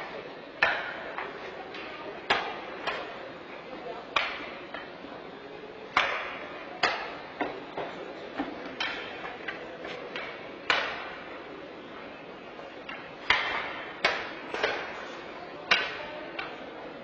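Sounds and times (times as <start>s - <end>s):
hockey sticks striking puck: 0.6s - 3.2s, 4.2s - 4.9s, 5.9s - 11.3s, 12.8s - 16.6s
puck hitting boards: 0.6s - 3.2s, 4.2s - 4.9s, 5.9s - 11.4s, 12.8s - 16.6s.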